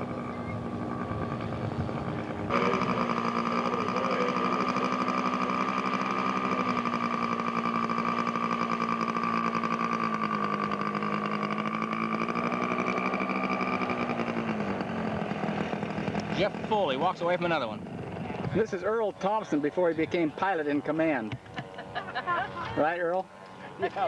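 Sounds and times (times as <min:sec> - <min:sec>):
model airplane engine buzzing: 0:00.0 - 0:18.9.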